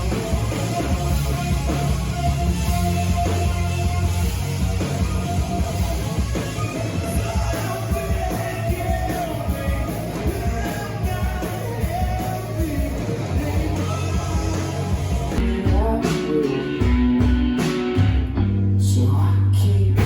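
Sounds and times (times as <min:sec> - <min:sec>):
rock band playing: 0:00.0 - 0:19.1
singer yelling and singing: 0:06.4 - 0:17.3.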